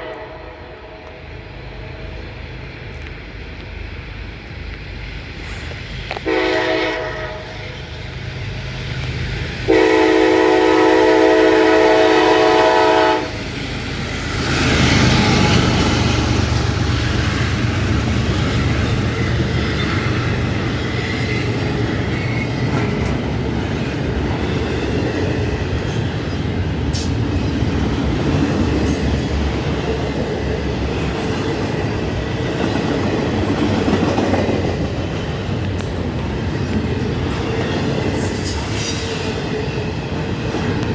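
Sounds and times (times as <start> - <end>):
locomotive horn blast: 0.0 - 1.1, 6.2 - 7.8, 9.7 - 13.4
high screaming locomotive noise: 0.0 - 40.9
train rumble and wheel clatter: 0.0 - 40.9.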